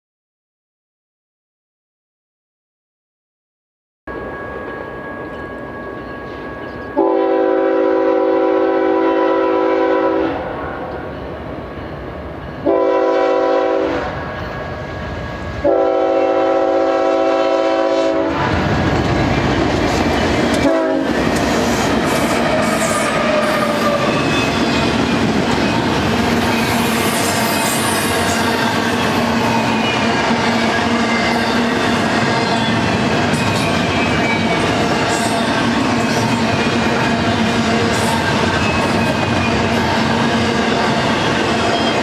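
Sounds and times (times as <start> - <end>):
locomotive engines rolling past: 4.1 - 7.0, 18.3 - 42.0
locomotive air horn blasts: 7.0 - 10.5, 12.6 - 14.1, 15.6 - 18.4, 20.6 - 21.2
train wheels clattering on rails: 18.3 - 42.0.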